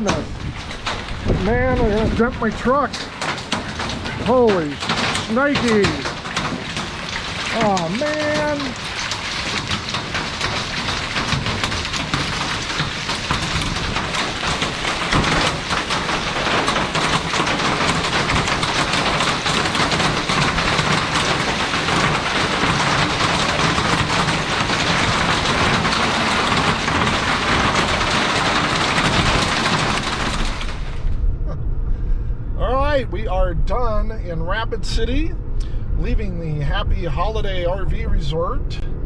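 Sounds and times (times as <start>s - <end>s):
hail and rain pelting: 0.0s - 31.2s
hailstones striking metal roofs: 0.0s - 31.2s.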